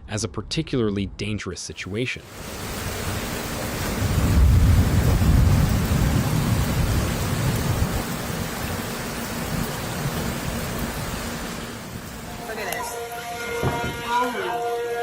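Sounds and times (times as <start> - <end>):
steady rain hiss: 1.7 - 15.0
thunder rumbling: 2.2 - 14.1.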